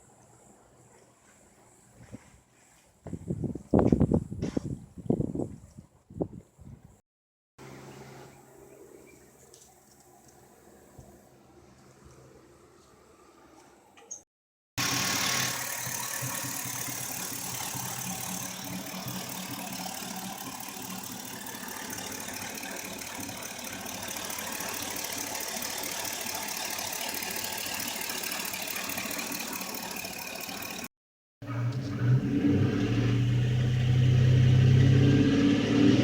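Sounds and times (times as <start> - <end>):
engine idling: 14.8 - 30.9
fast fine ticking: 14.8 - 30.9.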